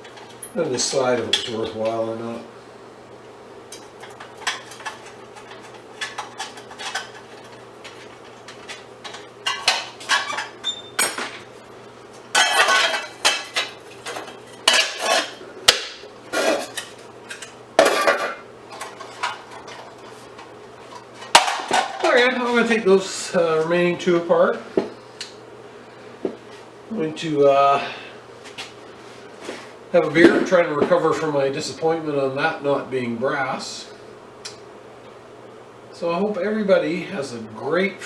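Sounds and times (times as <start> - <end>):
scrap metal parts clattering: 12.3 - 15.4, 16.3 - 20.1.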